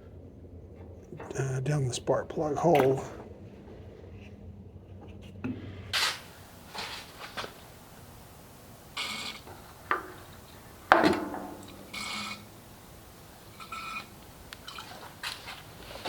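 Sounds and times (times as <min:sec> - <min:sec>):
hand tools clinking on metal: 0:06.0 - 0:16.0.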